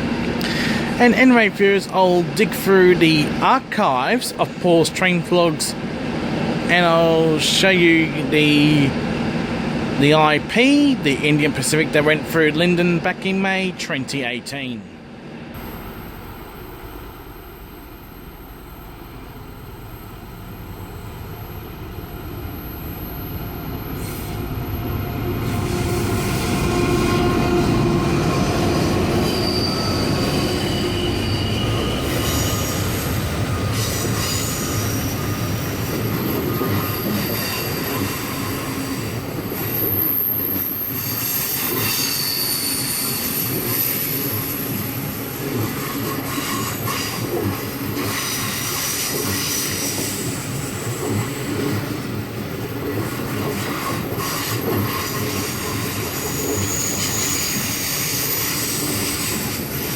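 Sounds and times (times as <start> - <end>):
rumble of wheels on track: 15.0 - 59.9
train wheels squealing on rail: 20.6 - 59.9.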